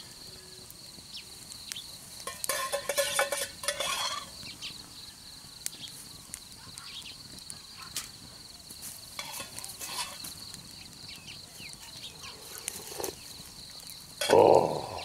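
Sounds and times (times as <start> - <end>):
low animal call: 14.2 - 15.0.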